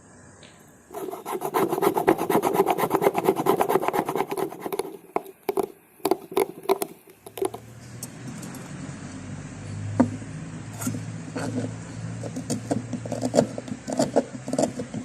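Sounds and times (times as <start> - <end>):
abrasive rubbing on knife: 0.9 - 5.6.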